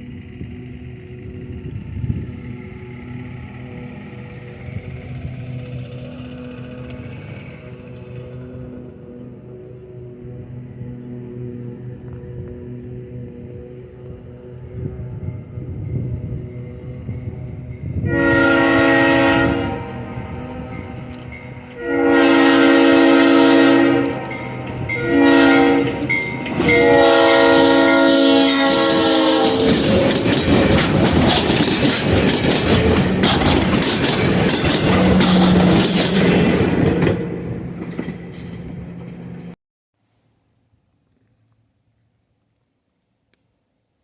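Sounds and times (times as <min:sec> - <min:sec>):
diesel engine: 0:00.0 - 0:39.6
train wheels clicking on rails: 0:01.3 - 0:09.0, 0:25.8 - 0:39.6
locomotive air horn blasts: 0:18.0 - 0:30.2.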